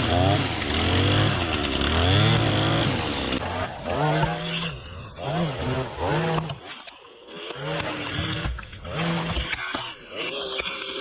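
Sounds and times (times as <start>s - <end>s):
chainsaw revving: 0.0s - 11.0s.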